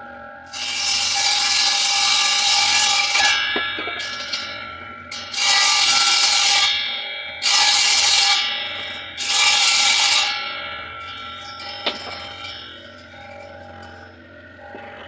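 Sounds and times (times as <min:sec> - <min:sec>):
saw motor whining: 0:00.0 - 0:15.0
saw cutting noisily: 0:00.5 - 0:06.8.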